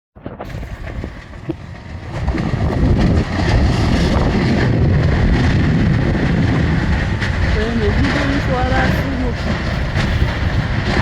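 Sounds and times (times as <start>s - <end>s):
wind buffeting microphone: 0.2s - 11.0s.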